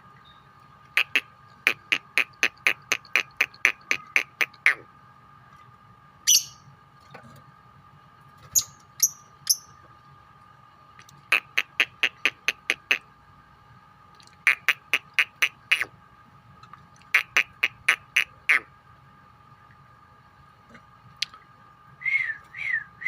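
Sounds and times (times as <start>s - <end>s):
lovebirds chirping and chattering: 0.2s - 4.8s, 6.3s - 6.7s, 8.5s - 9.8s.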